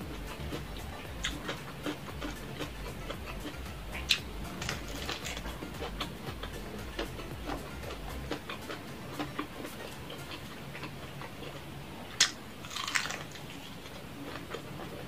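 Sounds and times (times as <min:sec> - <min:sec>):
wet mouth clicks: 0:00.0 - 0:11.6
chewing crunchy fried chicken: 0:00.0 - 0:15.0
low steady hum: 0:00.0 - 0:15.0.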